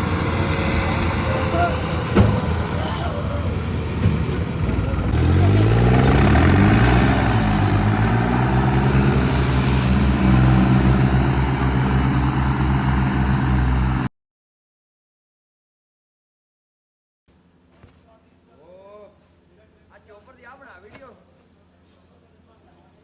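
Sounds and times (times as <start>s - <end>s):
tractor diesel engine running: 0.0s - 14.1s.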